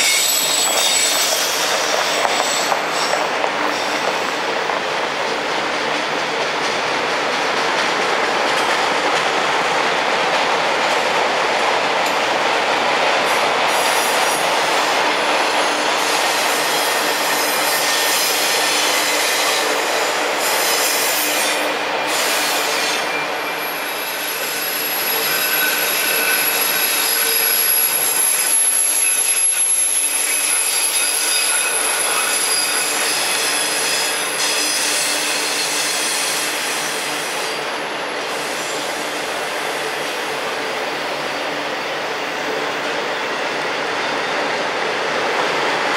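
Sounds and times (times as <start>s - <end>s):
high-pitched wheel squeal: 0.0s - 3.2s, 20.7s - 36.5s
freight train wheels rumbling: 0.0s - 45.9s.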